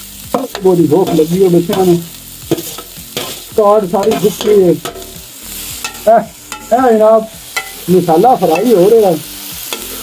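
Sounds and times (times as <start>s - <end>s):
vegetables sizzling in a pot: 0.0s - 10.0s
person speaking: 0.3s - 2.1s, 3.5s - 4.9s, 6.0s - 9.2s
metal utensil stirring in pot: 0.5s - 6.8s.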